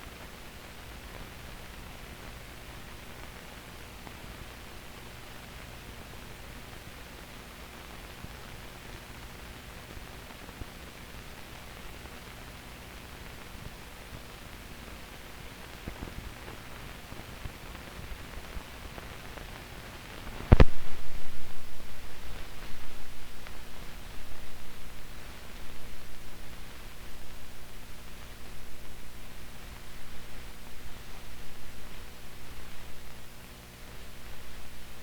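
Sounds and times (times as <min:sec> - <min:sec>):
film hiss and hum: 0:00.0 - 0:35.0.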